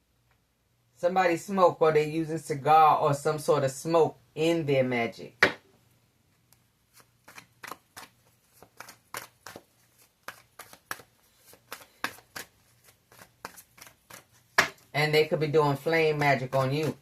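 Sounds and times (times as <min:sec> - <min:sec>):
cards being shuffled: 0:06.9 - 0:14.9, 0:15.7 - 0:17.0.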